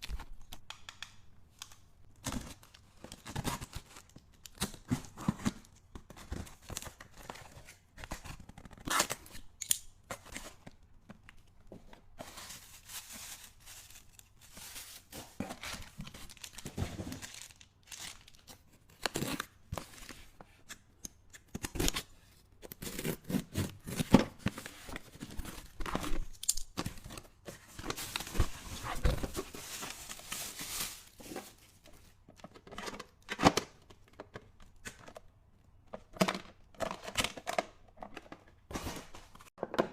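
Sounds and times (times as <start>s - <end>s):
packaging tearing and crinkling: 27.9s - 31.3s.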